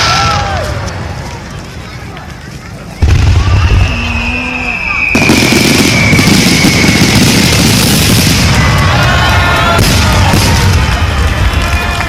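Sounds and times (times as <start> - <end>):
fireworks bangs and crackling: 0.0 - 12.0
high falling whistle: 3.5 - 7.2.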